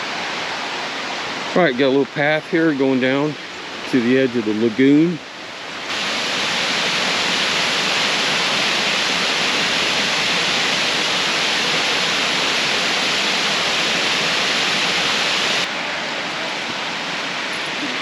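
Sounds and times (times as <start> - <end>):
waterfall pouring into pool: 5.9 - 18.0.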